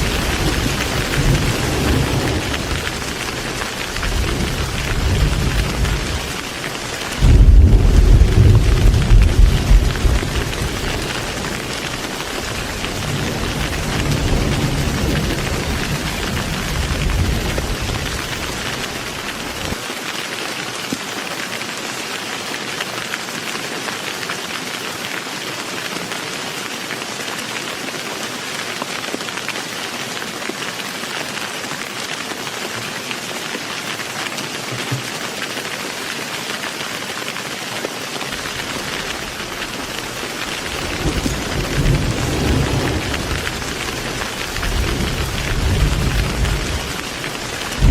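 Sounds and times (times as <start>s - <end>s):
low thunder rumbling: 0.0s - 19.8s, 38.3s - 47.9s
heavy rain falling: 0.0s - 47.9s.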